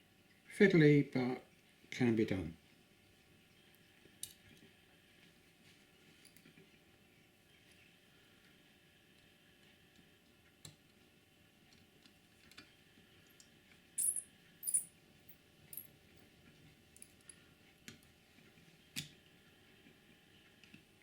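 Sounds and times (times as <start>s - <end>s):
tiny screws and tool clicking: 14.0s - 14.9s.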